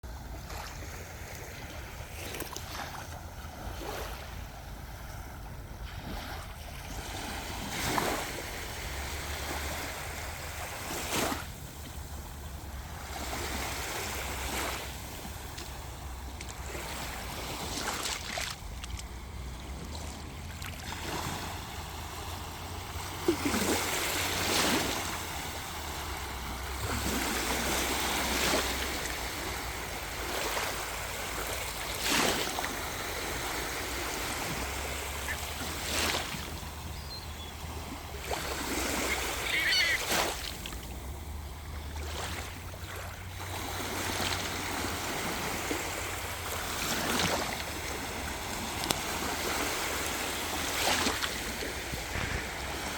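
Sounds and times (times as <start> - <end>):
sea waves washing onto beach: 0.1 - 52.9
wind rumble on microphone: 47.4 - 52.9.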